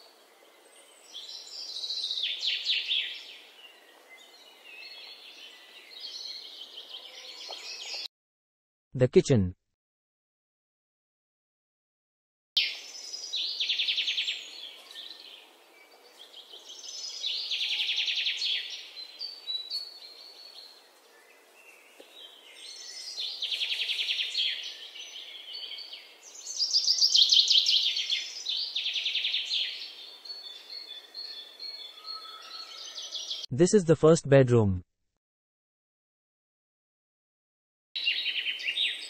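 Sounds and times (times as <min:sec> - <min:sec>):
birds chirping in rapid trills: 0:12.6 - 0:33.5.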